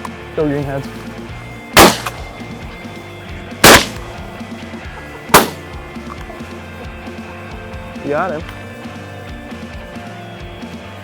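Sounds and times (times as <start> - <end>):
shotgun shots with echo: 1.8 - 2.5, 3.6 - 4.2, 5.3 - 5.6.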